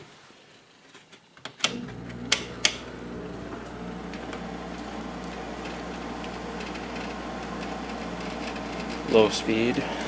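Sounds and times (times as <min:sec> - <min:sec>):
air conditioner switch clicks: 0:01.6 - 0:02.9
air conditioner humming: 0:01.7 - 0:10.0.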